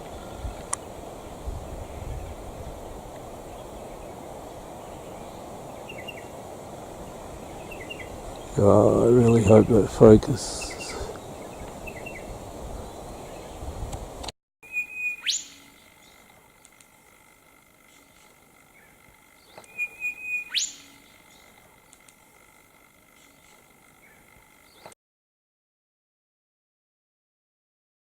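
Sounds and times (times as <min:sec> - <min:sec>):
songbird whistling call: 0:14.6 - 0:16.2, 0:19.4 - 0:21.5
faint bird chirps: 0:14.6 - 0:25.0.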